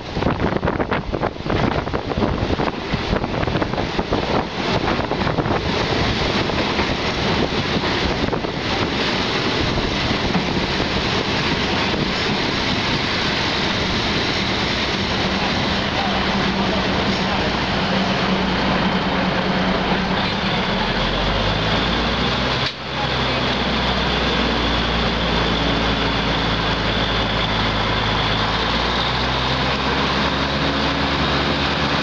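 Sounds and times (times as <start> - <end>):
wind buffeting microphone: 0.0 - 20.7
train running on rails: 0.0 - 32.0.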